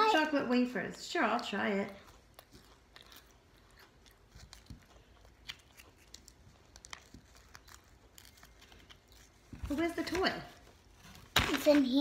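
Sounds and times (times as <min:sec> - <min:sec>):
child chewing crunchy wafer: 0:01.7 - 0:09.6.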